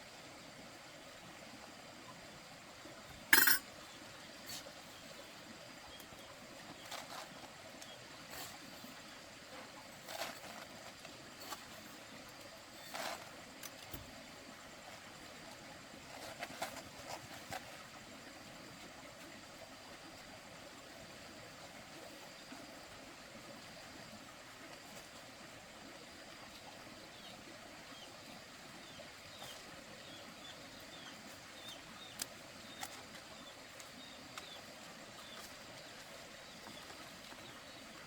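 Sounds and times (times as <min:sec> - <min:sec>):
faint outdoor hiss: 0:00.0 - 0:38.0
small birds chirping: 0:26.9 - 0:38.0.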